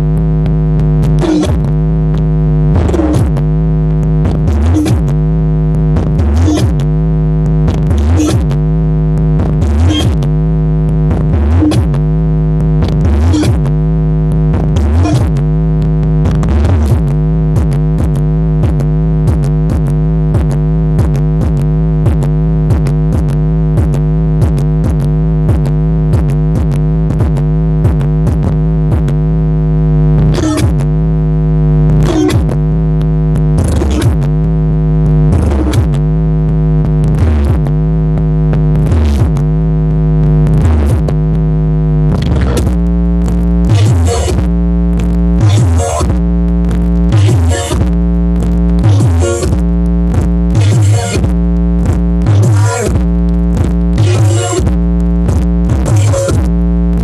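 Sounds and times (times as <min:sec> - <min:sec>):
steady beat: 0:00.0 - 0:57.0
electronic synthesizer music: 0:40.3 - 0:57.0.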